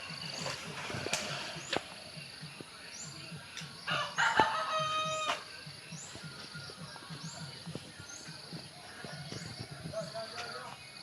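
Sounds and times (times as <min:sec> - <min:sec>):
low pulsing rhythm: 0:00.0 - 0:11.0
rooster crowing: 0:03.9 - 0:05.4.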